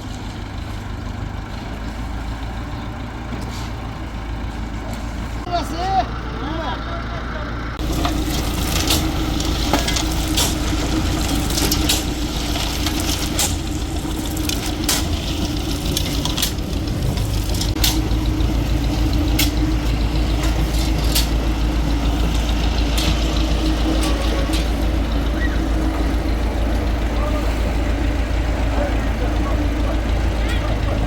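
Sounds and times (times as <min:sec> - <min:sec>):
heavy engine running: 0:00.0 - 0:31.0
sharp knocks and clatters: 0:07.8 - 0:25.1.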